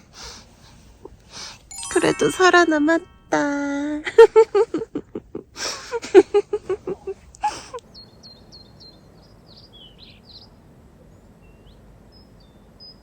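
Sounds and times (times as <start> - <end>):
small birds chirping: 7.0 - 13.0.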